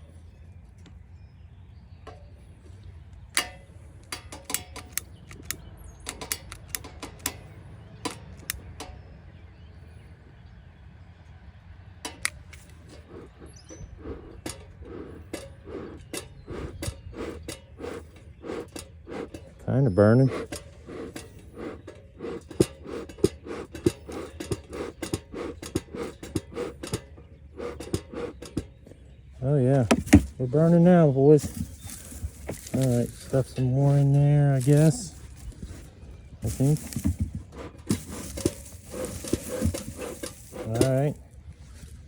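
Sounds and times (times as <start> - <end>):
clicks and crackles: 3.2 - 9.0
smoker puffs: 12.1 - 28.8, 29.4 - 42.0.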